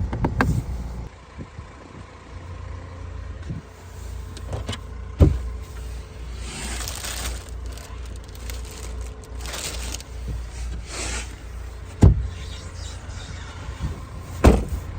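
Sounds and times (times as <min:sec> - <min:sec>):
low steady rumble: 0:00.0 - 0:14.9
heavy thump: 0:05.2 - 0:05.5, 0:11.9 - 0:12.3, 0:13.8 - 0:14.8.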